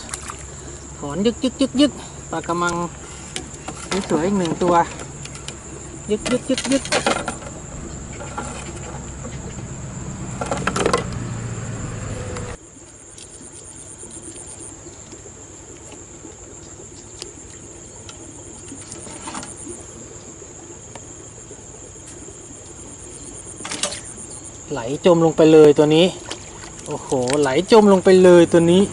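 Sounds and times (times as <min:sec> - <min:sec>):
insects chirring: 0:00.0 - 0:28.9
low rumble: 0:07.2 - 0:12.6.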